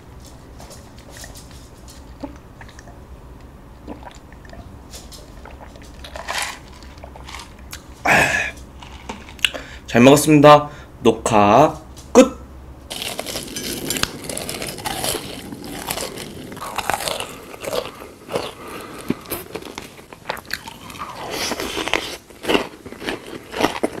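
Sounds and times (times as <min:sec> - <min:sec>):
person chewing crunchy food: 0:05.2 - 0:09.6, 0:12.9 - 0:24.0.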